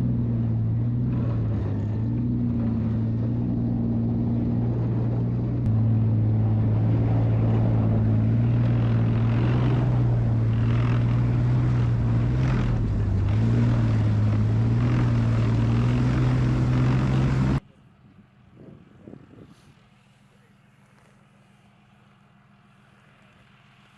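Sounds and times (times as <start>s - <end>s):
tank engine droning: 0.0s - 23.9s.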